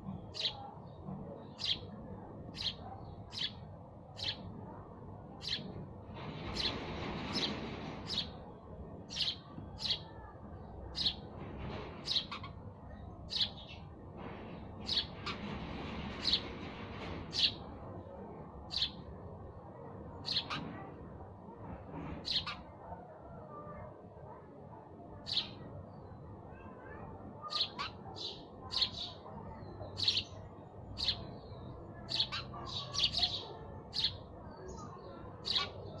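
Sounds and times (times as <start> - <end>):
sparrows chirping: 0.0 - 19.2, 20.2 - 20.9, 22.2 - 22.9, 25.2 - 36.0
low background noise: 0.0 - 36.0.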